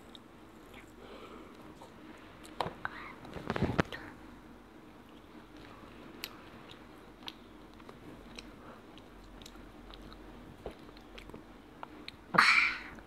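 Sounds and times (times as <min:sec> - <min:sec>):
child chewing: 0:05.0 - 0:13.0.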